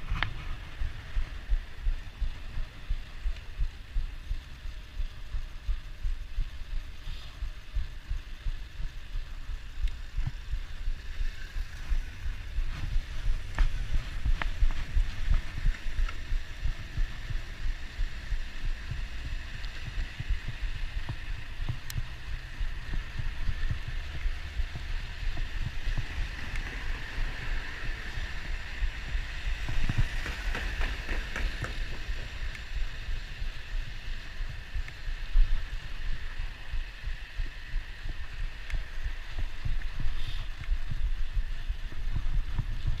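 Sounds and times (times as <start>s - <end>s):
road and tyre noise: 0.0s - 43.0s
wind buffeting microphone: 0.0s - 43.0s
faint ticks: 0.1s - 43.0s.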